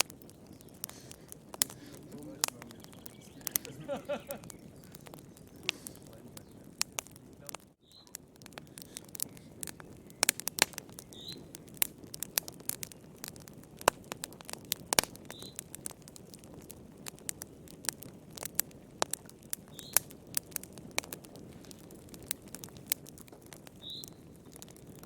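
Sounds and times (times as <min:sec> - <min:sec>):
wood fire crackling: 0:00.0 - 0:25.0
faint high chirp: 0:02.7 - 0:05.7, 0:07.8 - 0:08.1, 0:11.0 - 0:11.5, 0:15.3 - 0:15.6.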